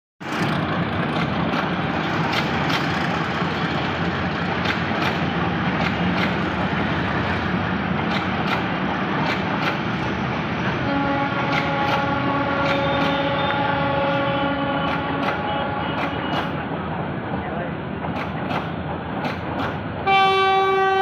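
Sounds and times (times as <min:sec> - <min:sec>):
wheels clicking over rail joints: 0:00.2 - 0:06.6, 0:08.0 - 0:09.9
diesel locomotive engine running: 0:00.2 - 0:21.0
passenger train rumbling past: 0:00.2 - 0:21.0.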